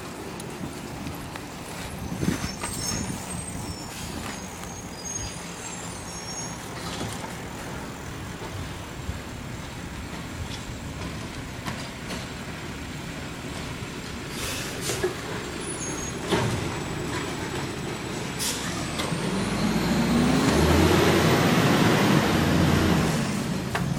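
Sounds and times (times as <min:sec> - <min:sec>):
garbage truck engine running: 0:00.0 - 0:23.9
short high squeaks: 0:02.2 - 0:07.1, 0:15.6 - 0:16.3.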